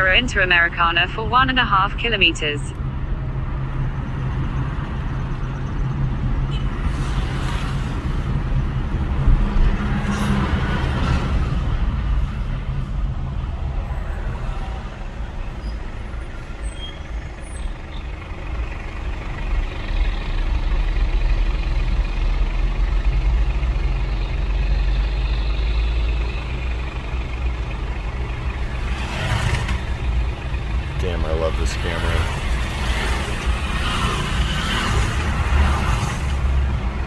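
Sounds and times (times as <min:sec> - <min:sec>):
car road noise from inside: 0:16.0 - 0:37.0.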